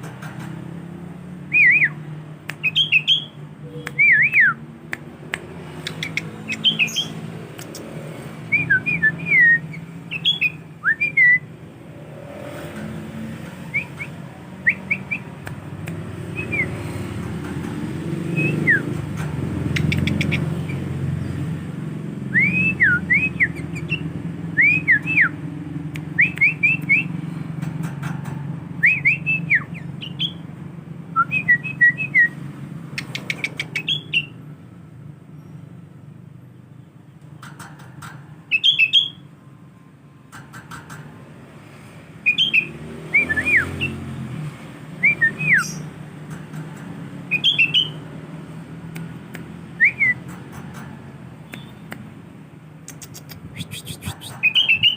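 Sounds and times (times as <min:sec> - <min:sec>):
bird whistling song: 0:01.5 - 0:04.6, 0:05.8 - 0:07.8, 0:08.5 - 0:11.6, 0:13.6 - 0:15.3, 0:16.3 - 0:17.0, 0:18.2 - 0:19.0, 0:19.7 - 0:21.4, 0:22.3 - 0:25.4, 0:26.0 - 0:27.2, 0:28.8 - 0:30.5, 0:31.1 - 0:32.4, 0:33.0 - 0:34.4, 0:38.5 - 0:39.3, 0:42.2 - 0:44.1, 0:45.0 - 0:46.0, 0:47.2 - 0:48.1, 0:49.6 - 0:50.4, 0:52.9 - 0:54.9
sharp clicks: 0:03.8 - 0:08.1, 0:12.6 - 0:20.8, 0:32.9 - 0:34.0, 0:37.2 - 0:38.3, 0:40.3 - 0:41.4, 0:45.6 - 0:48.0, 0:48.6 - 0:54.8.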